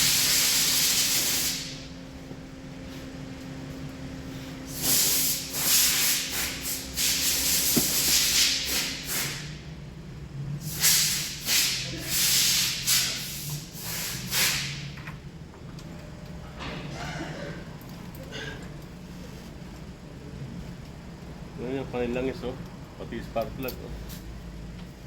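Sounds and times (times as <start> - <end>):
hissing spray bursts: 0.0 - 1.7, 4.7 - 9.5, 10.6 - 14.8.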